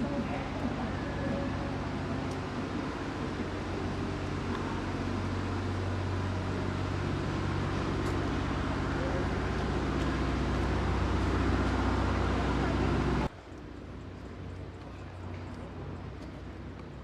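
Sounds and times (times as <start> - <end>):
motor vehicle rumble: 0.0 - 17.0.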